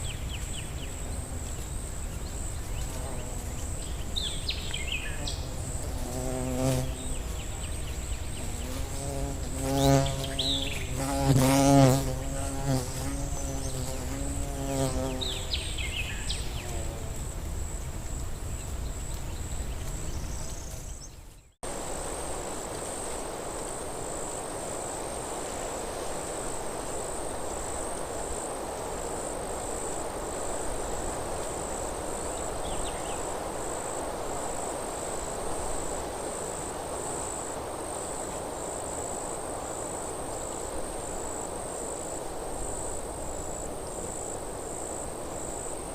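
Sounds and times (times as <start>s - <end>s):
insect buzzing close by: 0.0s - 17.8s
high insect trill: 0.0s - 21.1s, 21.7s - 45.9s
wind in trees: 0.0s - 45.9s.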